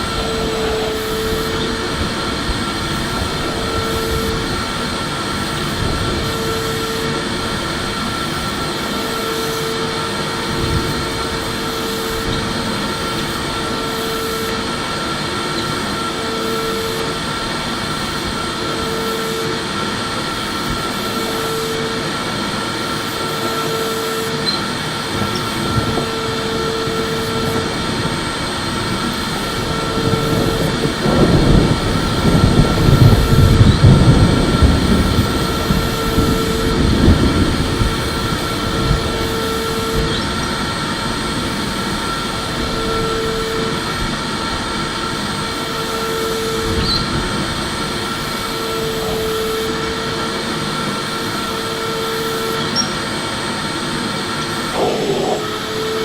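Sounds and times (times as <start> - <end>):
vacuum cleaner running: 0.0 - 56.0
low hum cutting in and out: 54.4 - 56.0.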